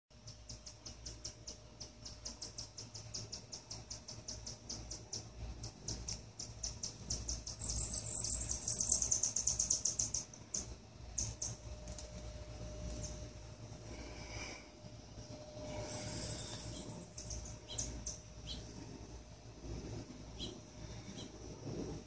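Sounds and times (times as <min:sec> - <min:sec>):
bird chirping: 0:00.2 - 0:13.3, 0:15.6 - 0:19.0, 0:20.4 - 0:21.4
loud fast bird trill: 0:06.4 - 0:11.6, 0:15.9 - 0:18.7.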